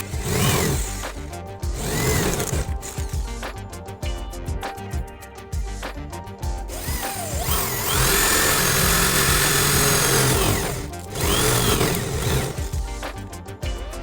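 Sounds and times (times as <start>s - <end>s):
power tool motor spinning: 0.0s - 3.3s, 6.7s - 12.9s
background music: 0.0s - 14.0s.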